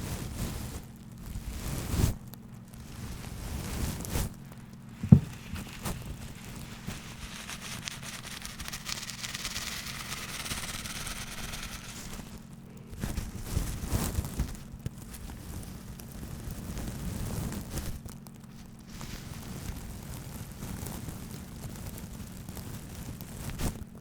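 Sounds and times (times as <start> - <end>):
dull taps and knocks: 5.0 - 6.3
fine rasp of scratching: 5.0 - 12.4.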